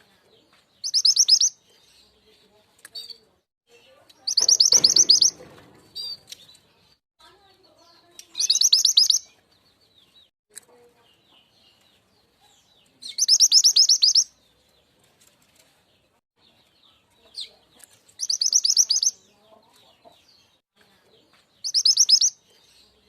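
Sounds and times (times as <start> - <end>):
bird song of sharp high notes: 0.0 - 23.0.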